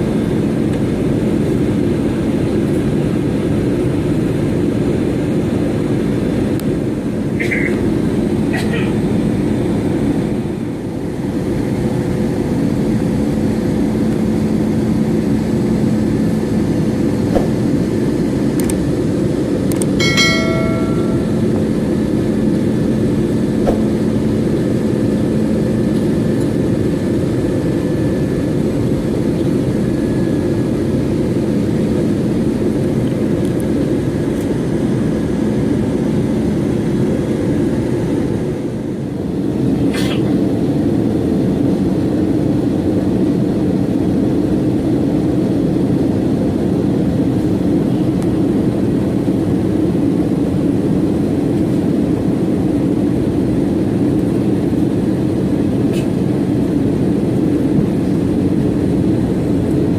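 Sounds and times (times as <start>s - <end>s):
airliner cabin engine drone: 0.0s - 59.9s
single chime: 20.0s - 21.9s.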